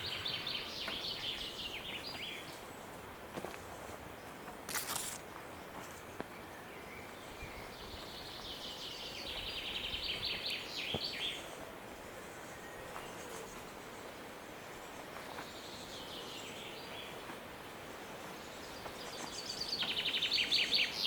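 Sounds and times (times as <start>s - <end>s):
brief rustle: 4.6s - 6.0s.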